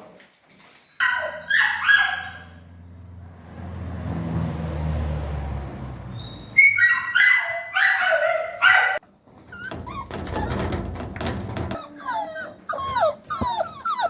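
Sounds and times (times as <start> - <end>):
dog yelping: 1.0 - 2.7, 6.1 - 11.0, 11.6 - 14.0.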